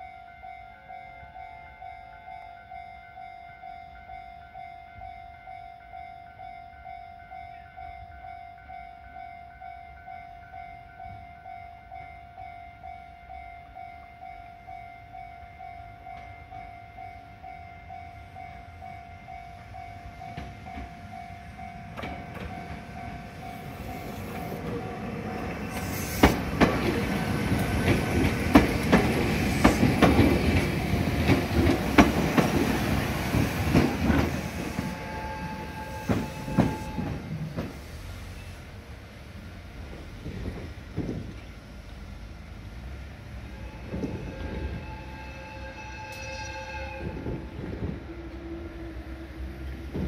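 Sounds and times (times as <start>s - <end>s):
train rumbling on track: 5.9s - 50.0s
wheels clacking over rail joints: 21.7s - 37.8s.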